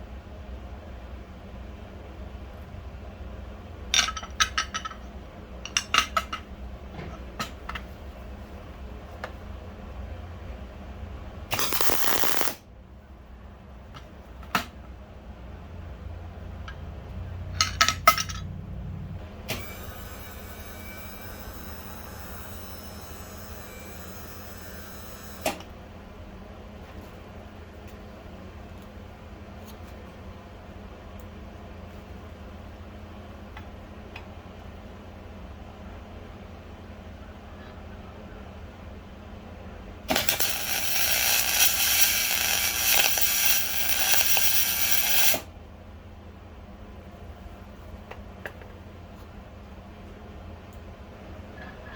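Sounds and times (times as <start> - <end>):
electric machine humming: 11.5 - 12.6, 19.2 - 25.6, 40.1 - 45.5
power tool whirring: 11.5 - 12.6, 19.5 - 25.6, 40.1 - 45.4.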